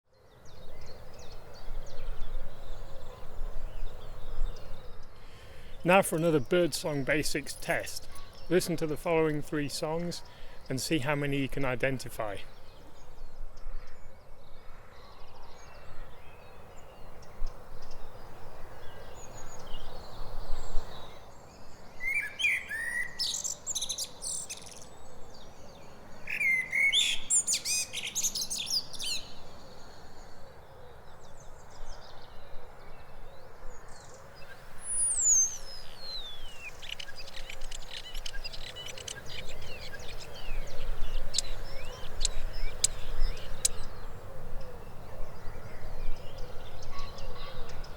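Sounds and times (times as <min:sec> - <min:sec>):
blackbird singing fluty phrases: 0:00.3 - 0:13.2, 0:18.8 - 0:30.3, 0:31.2 - 0:47.9
starling whistles and crackles: 0:36.2 - 0:43.8.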